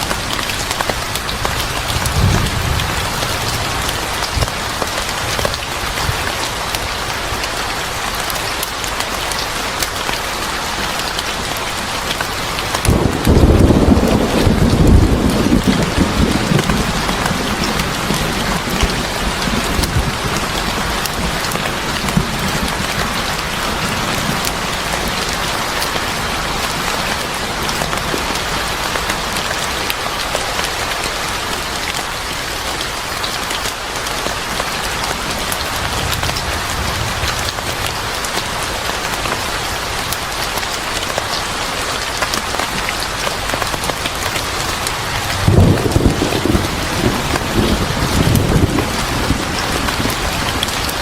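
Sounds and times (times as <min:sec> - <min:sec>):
thunder rumbling: 0:00.0 - 0:06.5, 0:12.8 - 0:25.1, 0:35.5 - 0:38.4, 0:45.0 - 0:51.0
heavy rain: 0:00.0 - 0:51.0.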